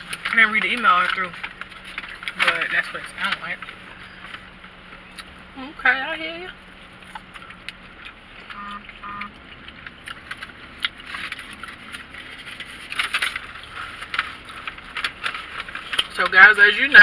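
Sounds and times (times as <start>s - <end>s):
chewing and crunching: 0.0s - 5.6s, 6.4s - 17.0s
crackling and rustling: 0.0s - 17.0s
short hums: 8.5s - 9.7s.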